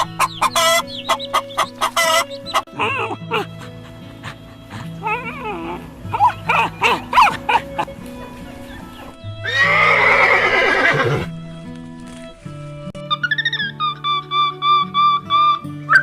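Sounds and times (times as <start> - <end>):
background music: 0.0 - 16.0
horse whinnying: 9.4 - 11.3.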